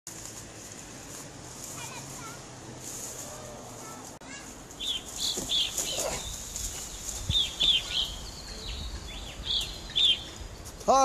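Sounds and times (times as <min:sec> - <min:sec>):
songbird chirping: 0:03.2 - 0:11.0.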